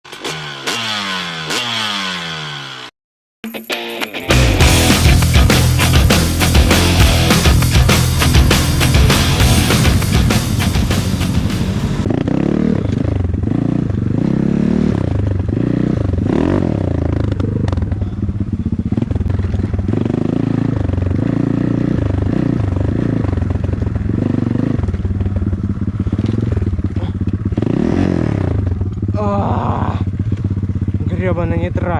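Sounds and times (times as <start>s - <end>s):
off-road vehicle engine revving: 0.1s - 2.9s, 4.6s - 25.0s, 25.6s - 31.9s
intro music: 3.4s - 12.1s.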